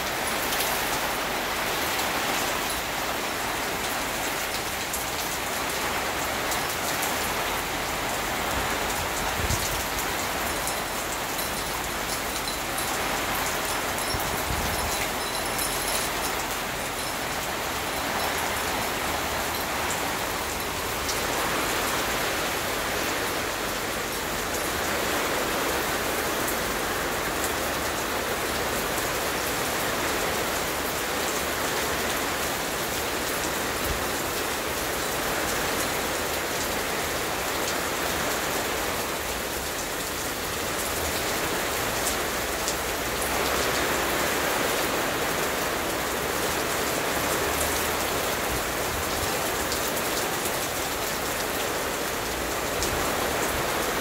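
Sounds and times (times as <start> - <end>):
sharp ticks of raindrops: 0.0 - 54.0
steady rain hiss: 0.0 - 54.0.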